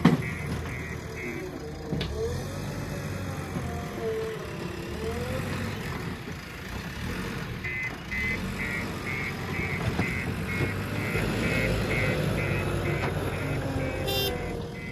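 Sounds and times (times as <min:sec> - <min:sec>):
reversing alarm beeping: 0:00.0 - 0:01.7, 0:07.6 - 0:14.9
diesel engine running: 0:00.0 - 0:14.9.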